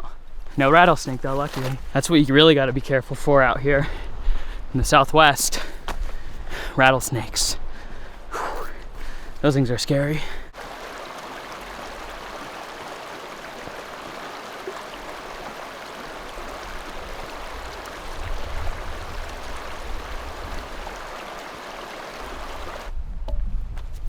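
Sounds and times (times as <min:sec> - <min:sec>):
creek water rushing: 0:00.6 - 0:02.3, 0:10.5 - 0:22.9
wind buffeting microphone: 0:10.6 - 0:24.0.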